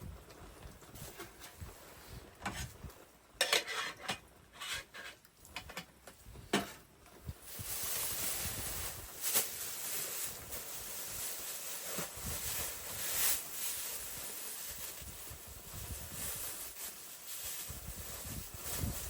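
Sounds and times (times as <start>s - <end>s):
metal utensils scraping a pot: 3.4s - 5.9s
steady hiss: 4.8s - 19.0s.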